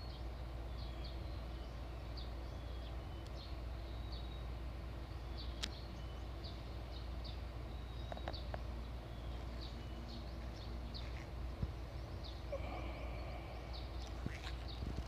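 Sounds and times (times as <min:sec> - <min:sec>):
small bird chirping: 0:00.0 - 0:15.0
steady low rumble: 0:00.0 - 0:15.0
sharp click: 0:05.6 - 0:05.8.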